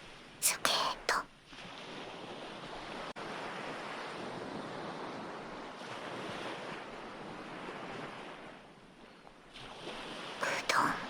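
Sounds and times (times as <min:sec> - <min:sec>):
ocean waves washing on shore: 0:00.0 - 0:11.0.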